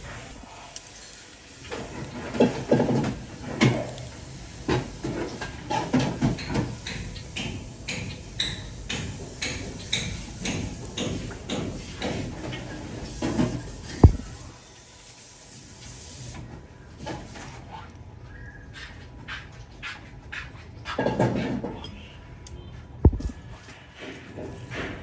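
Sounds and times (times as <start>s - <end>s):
steady hiss: 0.0s - 16.4s.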